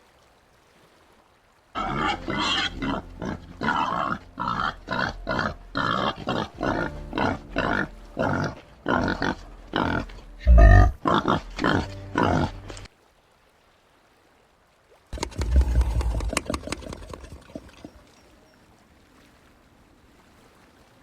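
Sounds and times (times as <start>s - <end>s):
peccary grunting: 1.8s - 12.9s.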